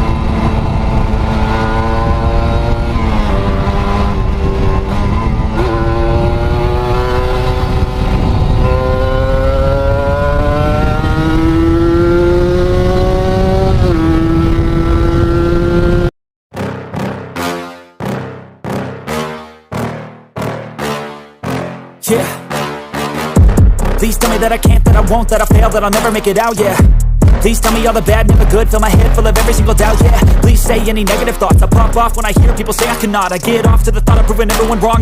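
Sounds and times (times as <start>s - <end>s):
two-stroke motorcycle engine revving: 0.0s - 16.1s, 23.4s - 35.0s
music with a beat: 23.0s - 35.0s.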